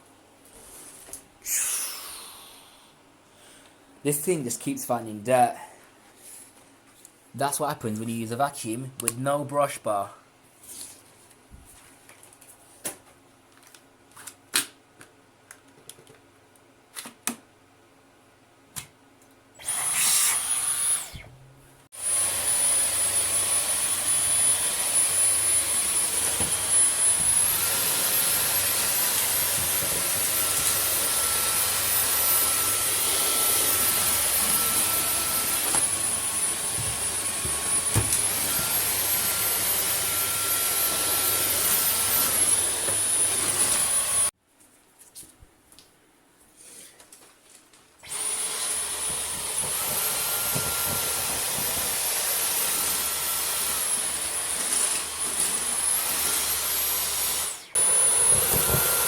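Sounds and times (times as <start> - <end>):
vacuum cleaner whining: 19.6 - 44.3, 48.0 - 59.0.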